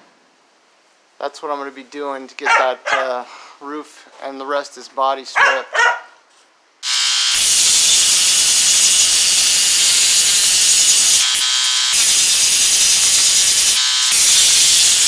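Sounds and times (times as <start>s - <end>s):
angle grinder grinding metal: 6.8s - 15.0s.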